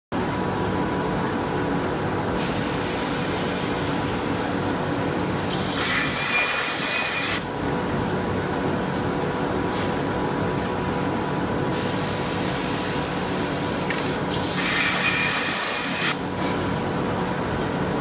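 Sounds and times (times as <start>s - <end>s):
steady machine hum: 0.2s - 18.0s
plasma torch hissing: 5.4s - 7.4s, 10.6s - 16.2s.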